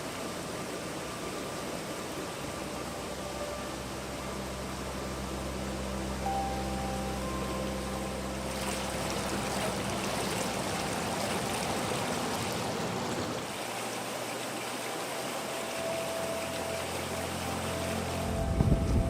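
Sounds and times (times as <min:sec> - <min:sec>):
low hum: 0:02.1 - 0:13.4, 0:15.2 - 0:19.0
water rushing down slide: 0:08.5 - 0:19.0.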